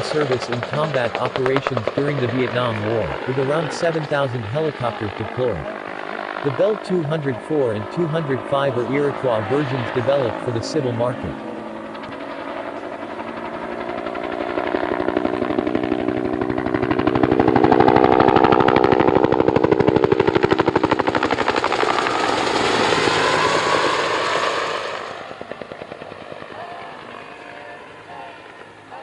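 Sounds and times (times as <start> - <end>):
helicopter rotor chop: 0.0 - 29.0.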